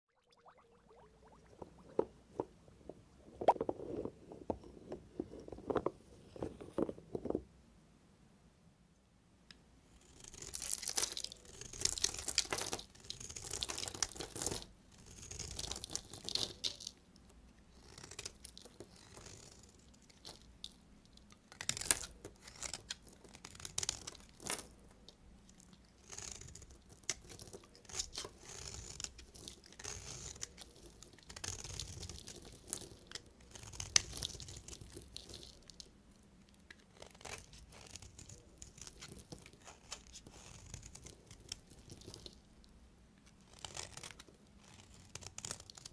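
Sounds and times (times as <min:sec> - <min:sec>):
knife cutting through soap: 0:21.5 - 0:24.7, 0:26.0 - 0:35.6.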